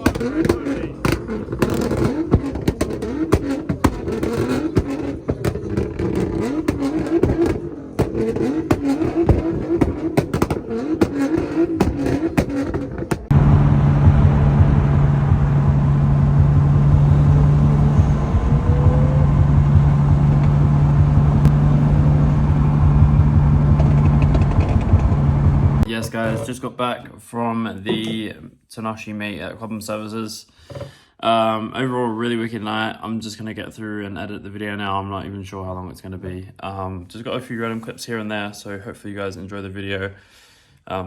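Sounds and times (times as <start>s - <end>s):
car engines revving: 0.0s - 25.9s
exhaust pops and crackles: 0.0s - 26.3s
steady engine drone: 13.3s - 25.9s.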